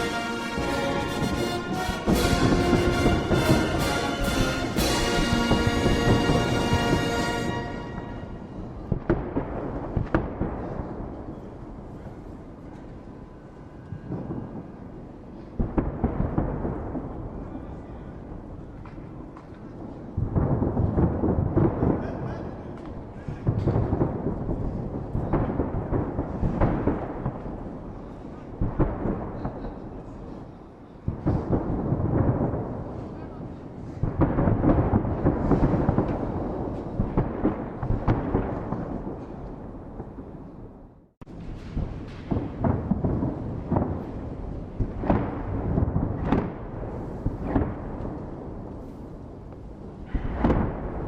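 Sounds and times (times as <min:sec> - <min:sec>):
rolling rumble: 0:00.0 - 0:09.1
fireworks booming: 0:00.0 - 0:51.0.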